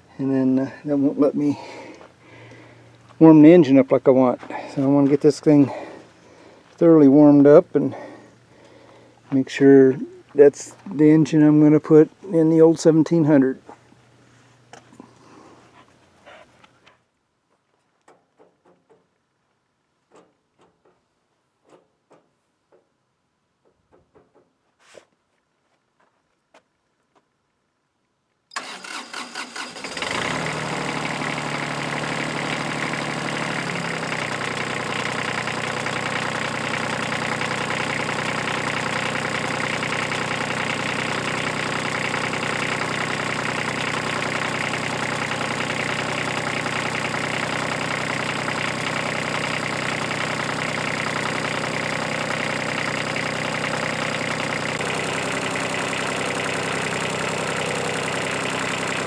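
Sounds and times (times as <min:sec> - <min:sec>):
starter motor cranking: 0:28.5 - 0:59.0
diesel engine idling: 0:28.6 - 0:59.0.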